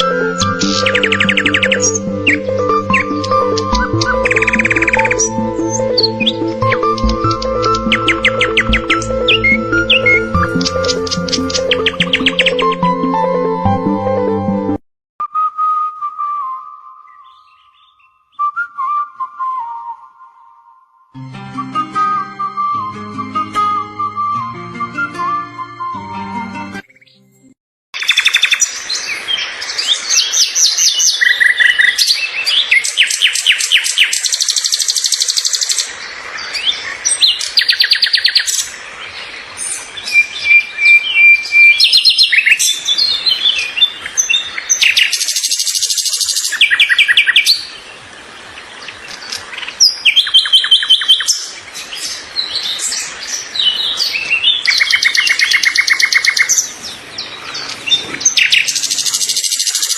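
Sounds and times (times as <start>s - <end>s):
songbirds singing: 0.0s - 12.9s, 17.0s - 18.6s, 28.0s - 59.9s.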